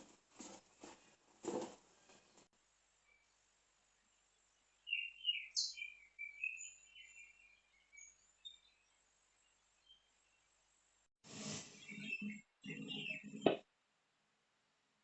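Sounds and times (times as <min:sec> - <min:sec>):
bird twittering: 0:04.9 - 0:08.6, 0:11.8 - 0:13.5.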